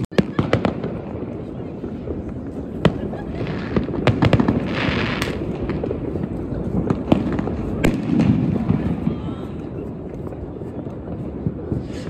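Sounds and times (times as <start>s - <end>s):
fireworks bangs: 0.0s - 12.0s
hissing rush of rocket: 11.3s - 12.0s.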